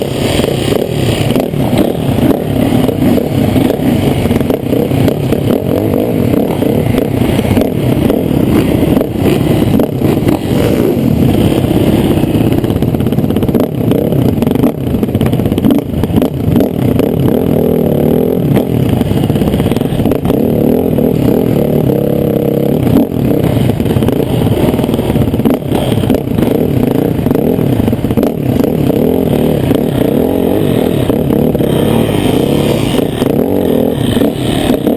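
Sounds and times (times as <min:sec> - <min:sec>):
rattling and scraping: 0:00.0 - 0:17.0
motocross bike engine revving: 0:00.0 - 0:34.9.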